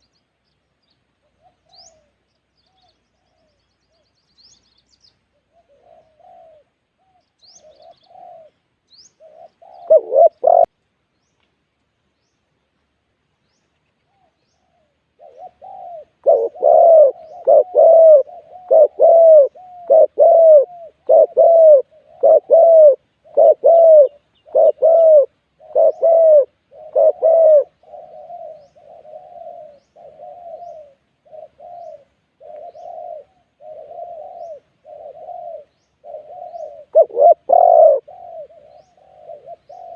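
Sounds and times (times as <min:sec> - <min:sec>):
faint high bird chirps: 0:00.0 - 0:06.3
doves cooing: 0:05.3 - 0:10.7, 0:14.0 - 0:39.9.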